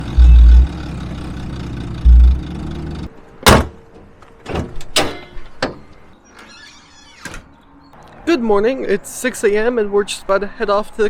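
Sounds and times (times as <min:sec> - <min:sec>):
car engine rumbling and revving: 0:00.0 - 0:03.1
sharp knocks of doors shutting: 0:03.4 - 0:03.8.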